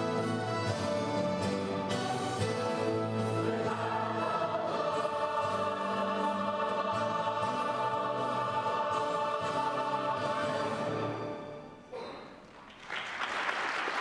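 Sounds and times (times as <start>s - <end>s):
choir singing held notes: 0.0s - 11.8s
instrumental accompaniment: 0.0s - 11.8s.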